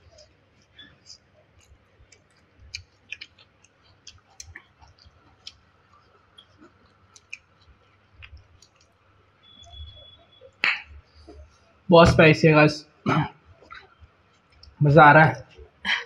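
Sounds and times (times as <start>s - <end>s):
person chewing with lip smacks: 0.0s - 9.8s.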